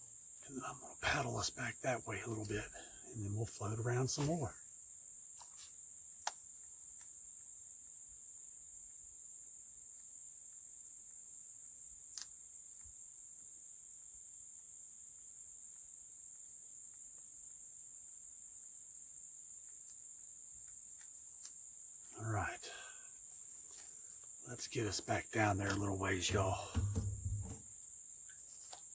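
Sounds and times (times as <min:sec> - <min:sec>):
insects chorus: 0:00.0 - 0:28.9
sharp click: 0:25.7 - 0:27.6.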